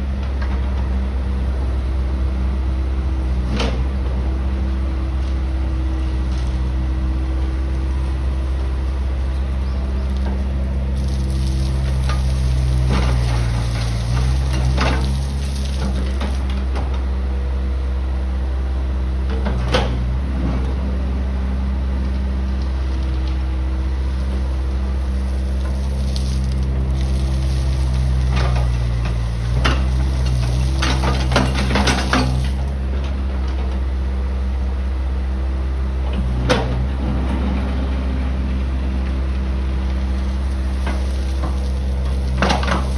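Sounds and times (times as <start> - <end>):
diesel engine running: 0.0 - 42.9
crushed stone clanking: 9.4 - 16.7, 24.3 - 32.8, 39.8 - 42.9.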